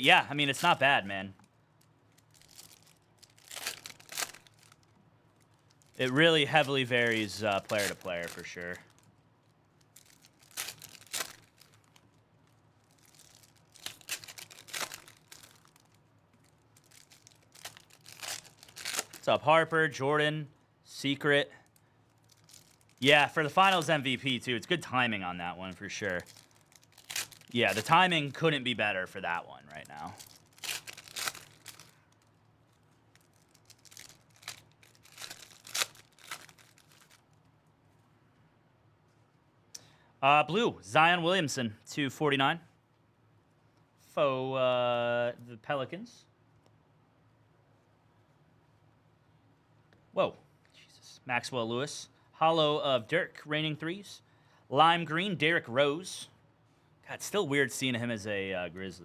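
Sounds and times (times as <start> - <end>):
card pack wrappers crinkling and tearing: 0.0 - 1.1, 1.8 - 9.2, 9.8 - 19.3, 21.7 - 37.4.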